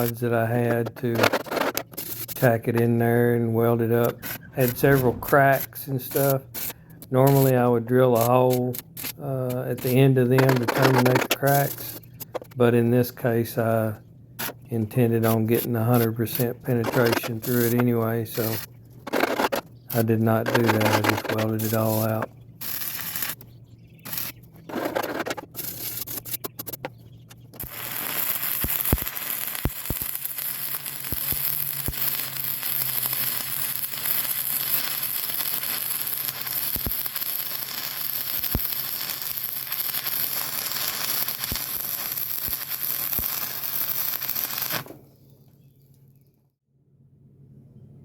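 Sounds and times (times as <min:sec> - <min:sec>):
welding arc crackling and sizzling: 0:00.0 - 0:03.0, 0:03.6 - 0:13.6, 0:14.4 - 0:26.8, 0:27.5 - 0:45.0.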